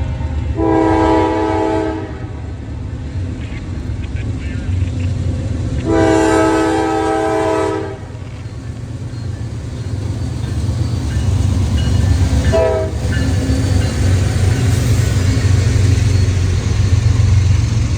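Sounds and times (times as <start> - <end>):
train rumble: 0.0 - 17.9
locomotive horn blasts: 0.6 - 2.4, 5.8 - 8.2, 12.4 - 13.2.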